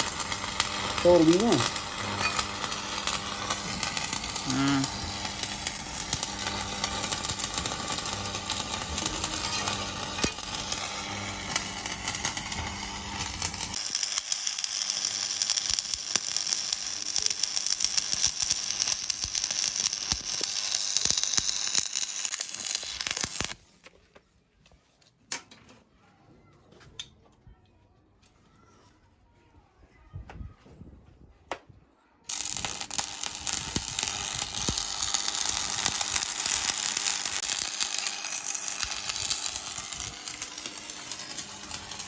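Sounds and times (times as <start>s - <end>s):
welding arc crackling: 0.0s - 23.8s, 32.3s - 42.0s.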